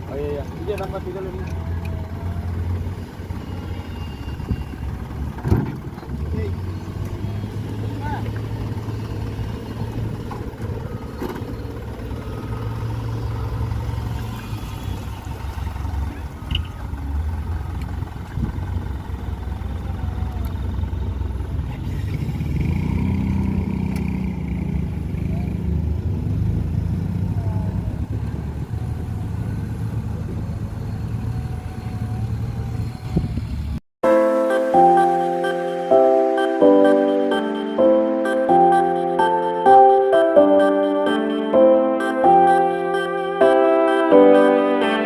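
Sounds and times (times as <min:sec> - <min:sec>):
diesel truck engine revving: 0:00.0 - 0:45.0.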